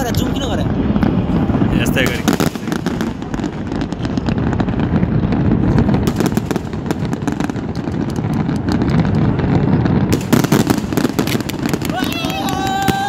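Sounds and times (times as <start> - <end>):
low rumble: 0.0 - 7.1
fireworks bangs and crackles: 0.0 - 13.0.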